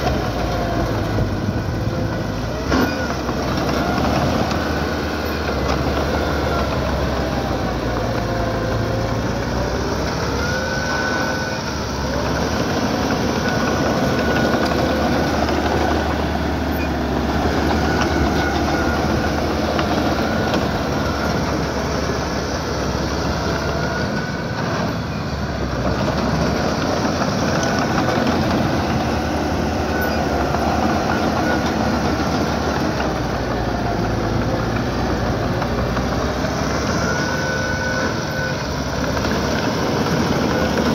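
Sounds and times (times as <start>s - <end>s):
diesel engine under load: 0.0s - 40.9s
short high squeals: 36.4s - 40.9s.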